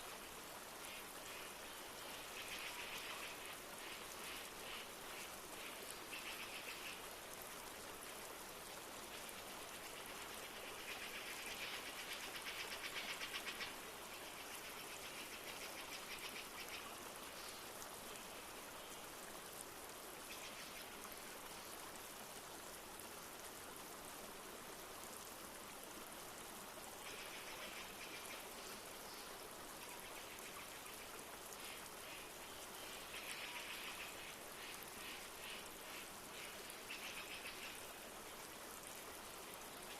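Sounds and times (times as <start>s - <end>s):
light rain: 0.0s - 39.9s
river flowing: 0.0s - 39.9s.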